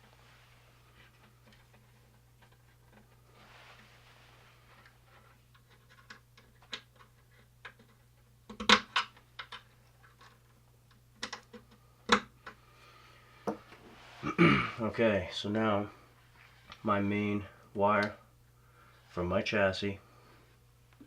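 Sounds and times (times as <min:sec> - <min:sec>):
low steady hum: 0:00.0 - 0:21.0
clicks and taps of wiring work: 0:05.5 - 0:12.6.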